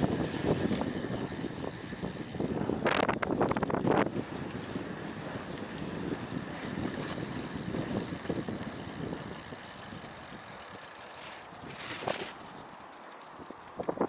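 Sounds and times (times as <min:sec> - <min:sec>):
wind rushing over microphone: 0:00.0 - 0:10.9
road noise from bike: 0:00.0 - 0:14.0.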